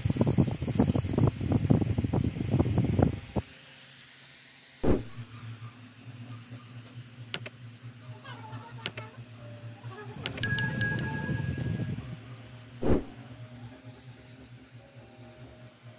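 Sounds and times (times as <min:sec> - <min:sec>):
electric fan motor hum: 0:00.0 - 0:03.8, 0:04.8 - 0:15.9
electronic ding: 0:10.4 - 0:12.2
dull thump: 0:12.8 - 0:13.1
brief rush of noise: 0:12.8 - 0:13.2.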